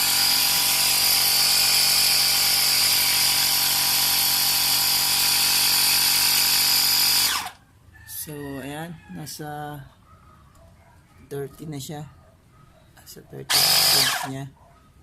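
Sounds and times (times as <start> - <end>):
air compressor whining: 0.0 - 7.6, 13.5 - 14.3.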